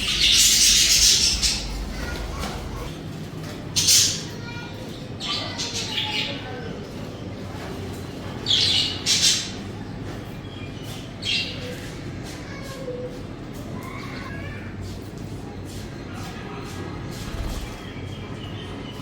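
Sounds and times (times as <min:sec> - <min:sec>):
budgerigars chirping and warbling: 0:00.0 - 0:02.9, 0:07.6 - 0:09.6.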